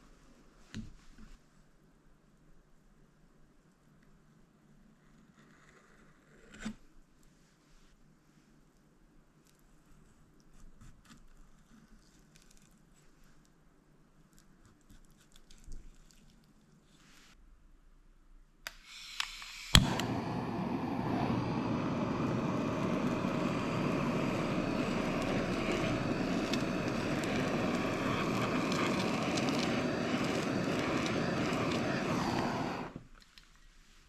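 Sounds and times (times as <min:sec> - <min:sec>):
blowtorch igniter clicks: 0:18.7 - 0:33.0
blowtorch flame running: 0:19.1 - 0:33.0.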